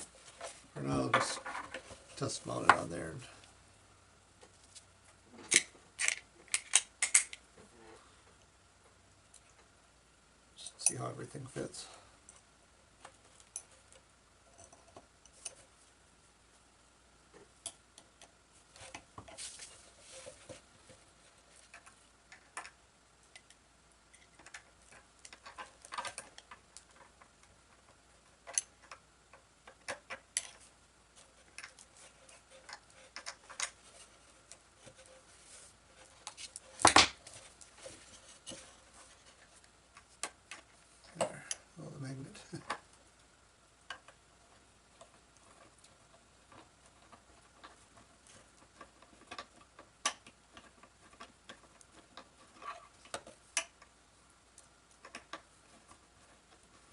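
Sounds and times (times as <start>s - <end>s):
screws and metal parts rattling: 50.6s - 53.4s.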